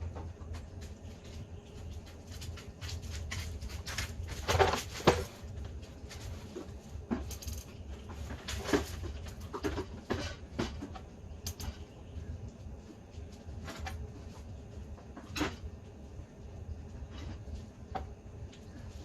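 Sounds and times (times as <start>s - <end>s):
low hum: 0.0s - 19.0s
metal parts and tools clanking: 7.2s - 11.8s.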